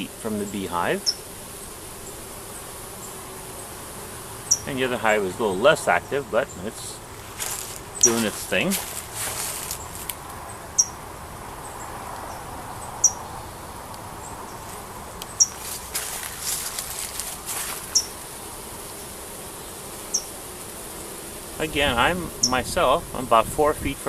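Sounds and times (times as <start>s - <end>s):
bees buzzing: 0.0s - 23.5s
high falling chirp: 5.5s - 8.7s.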